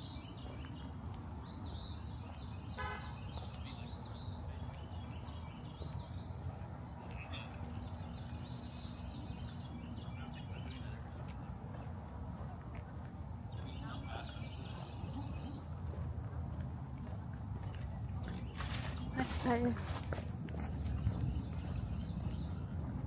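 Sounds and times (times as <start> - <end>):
birds calling: 0.0 - 12.0, 13.4 - 15.9
distant city traffic: 0.0 - 23.0.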